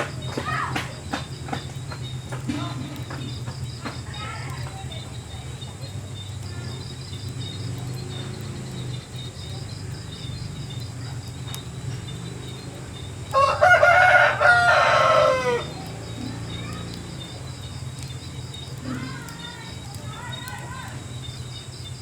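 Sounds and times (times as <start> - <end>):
insect chirping: 0.0 - 22.0
rooster crowing: 13.3 - 16.0.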